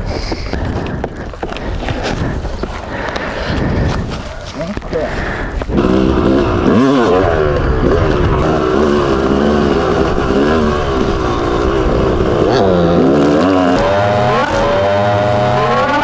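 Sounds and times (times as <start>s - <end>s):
dirt bike engine revving: 4.8s - 16.0s.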